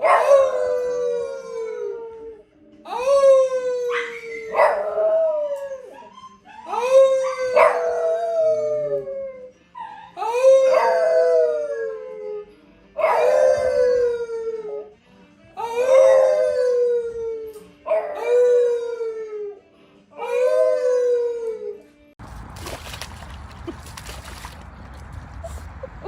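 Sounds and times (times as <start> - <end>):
dog howling: 0.0 - 14.9, 15.6 - 19.6, 20.2 - 21.9.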